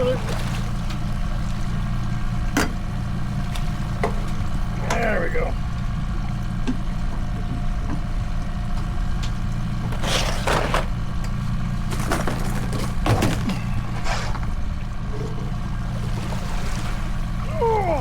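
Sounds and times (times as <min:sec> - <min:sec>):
boat motor running: 0:00.0 - 0:18.0.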